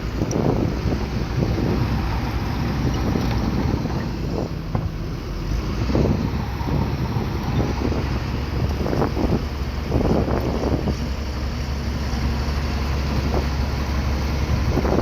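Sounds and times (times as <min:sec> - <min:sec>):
bulldozer diesel engine rumbling: 0:00.0 - 0:15.0
wind buffeting microphone: 0:00.0 - 0:15.0.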